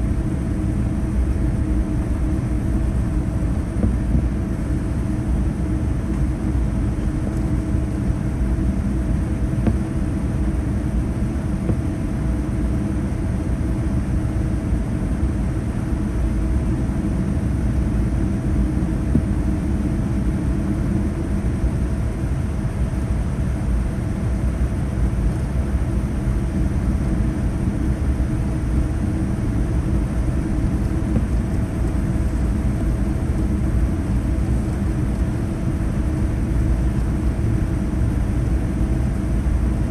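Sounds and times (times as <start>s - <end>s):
mid-pitched engine whine: 0.0s - 13.2s
low cabin rumble: 0.0s - 13.7s, 27.0s - 37.4s.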